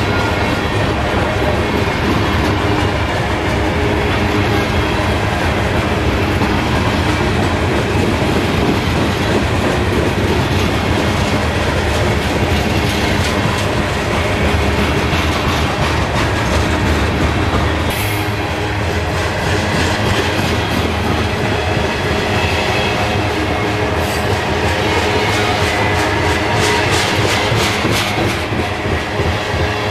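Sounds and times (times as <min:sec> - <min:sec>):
freight train rumbling past: 0:00.0 - 0:29.9.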